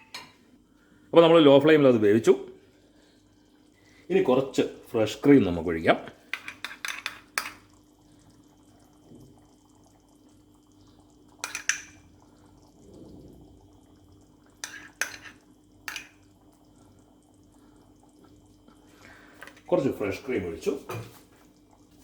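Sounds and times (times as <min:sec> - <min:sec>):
metal spoon clinking on pan: 0:00.0 - 0:00.4, 0:06.4 - 0:07.7, 0:11.4 - 0:12.0, 0:14.6 - 0:16.2
faint steady hum: 0:00.0 - 0:22.0.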